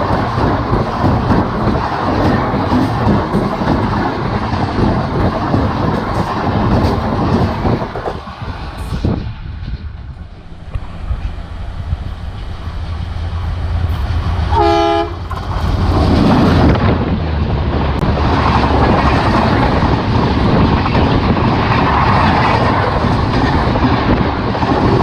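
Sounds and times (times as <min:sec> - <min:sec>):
rail clatter: 0:00.0 - 0:25.0
train passing at speed: 0:00.0 - 0:25.0
locomotive horn blast: 0:14.5 - 0:15.3.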